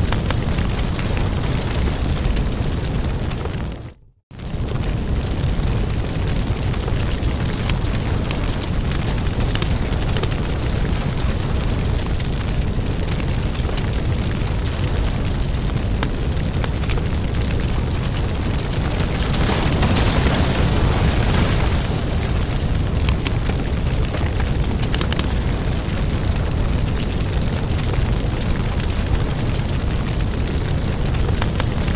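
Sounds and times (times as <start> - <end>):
fire crackles and pops: 0.0 - 31.9
fire flames rumbling: 0.0 - 31.9.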